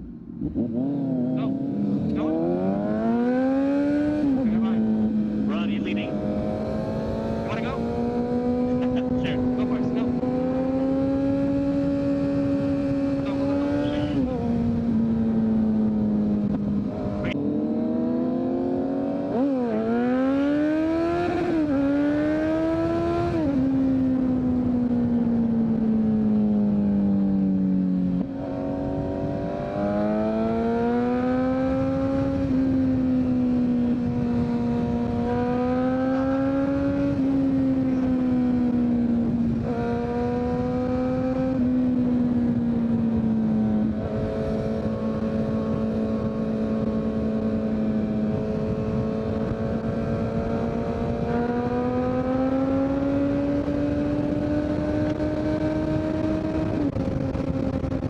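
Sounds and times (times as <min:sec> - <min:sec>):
motorcycle engine upshifting: 0:28.2 - 0:58.0
wind rush: 0:28.4 - 0:58.0.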